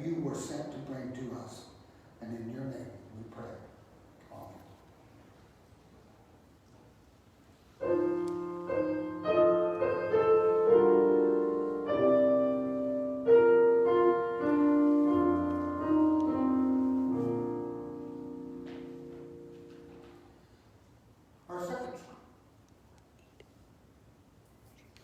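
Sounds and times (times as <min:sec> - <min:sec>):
piano music: 0:07.8 - 0:20.6.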